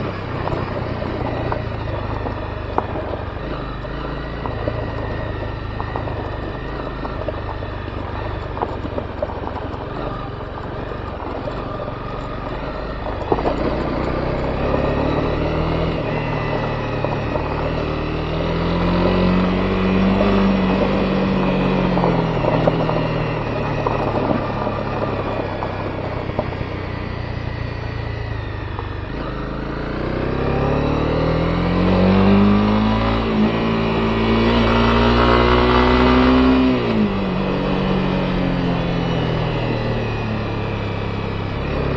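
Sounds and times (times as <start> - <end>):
motorcycle engine revving: 0.0 - 41.9
tyres crackling on loose stones: 0.4 - 16.0.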